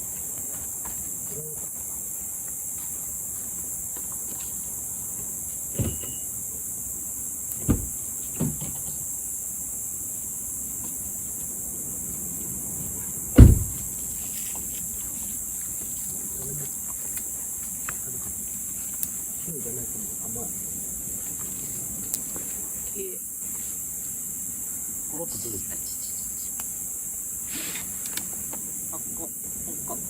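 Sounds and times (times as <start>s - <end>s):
crickets chirring: 0.0s - 30.0s
short dull thumps: 7.6s - 8.8s, 13.4s - 13.9s.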